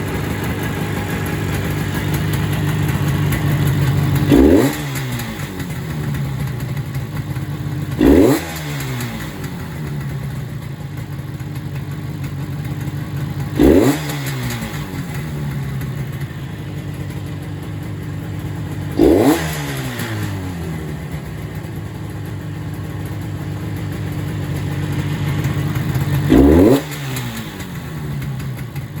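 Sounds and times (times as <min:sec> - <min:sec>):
engine throttle revs: 0:00.0 - 0:06.6, 0:07.9 - 0:10.0, 0:13.5 - 0:16.2, 0:18.9 - 0:21.3, 0:25.2 - 0:28.9
motorcycle engine idling: 0:00.0 - 0:29.0.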